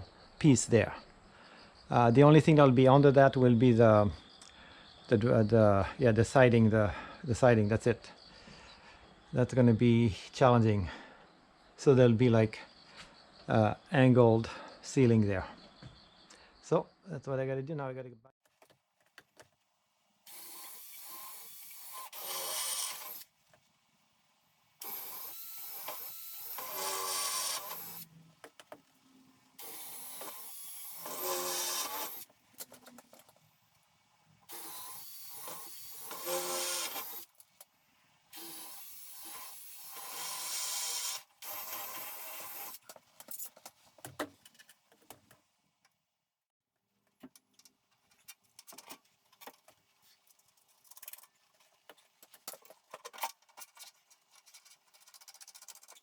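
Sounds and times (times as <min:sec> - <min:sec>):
handheld power drill running: 0:20.3 - 0:23.3, 0:24.8 - 0:28.1, 0:29.6 - 0:32.3, 0:34.5 - 0:37.3, 0:38.3 - 0:42.8.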